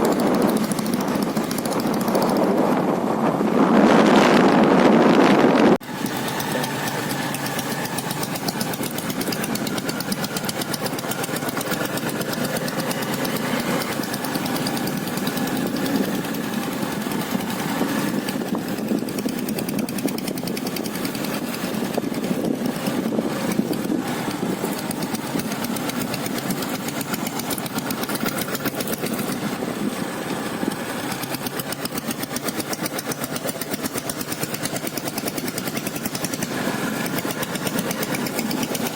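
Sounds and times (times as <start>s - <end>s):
diesel motorcycle engine knocking: 0.0s - 2.8s, 5.8s - 38.9s
wind rush on microphone: 0.0s - 5.8s, 14.0s - 31.8s.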